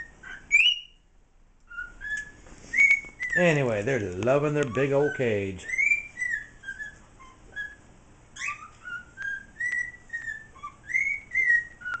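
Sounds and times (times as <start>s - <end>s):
cockatiels whistling: 0.0s - 12.0s
sharp bird clicks: 11.4s - 12.0s.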